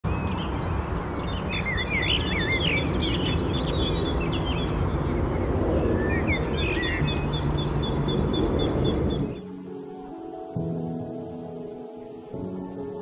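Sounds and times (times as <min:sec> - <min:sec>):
birds singing: 0:00.1 - 0:09.5.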